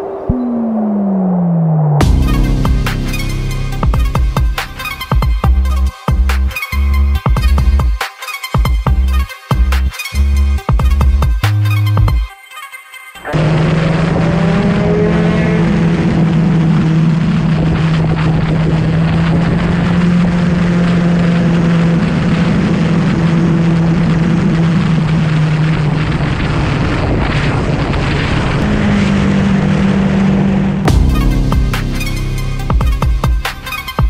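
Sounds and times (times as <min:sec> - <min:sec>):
motorcycle engine running: 0:13.3 - 0:27.4, 0:28.4 - 0:34.0
wind noise: 0:15.7 - 0:31.6.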